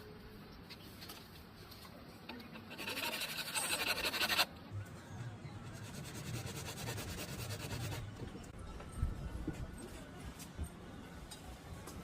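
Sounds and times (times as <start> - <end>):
rapid scratching: 2.6 - 4.5.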